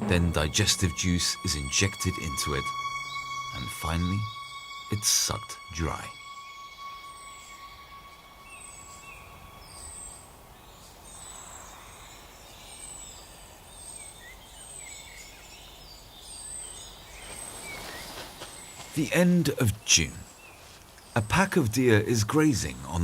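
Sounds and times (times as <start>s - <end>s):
high sliding bird notes: 0.0s - 10.5s
background hiss: 0.0s - 23.0s
soft bird chirps: 0.6s - 22.7s.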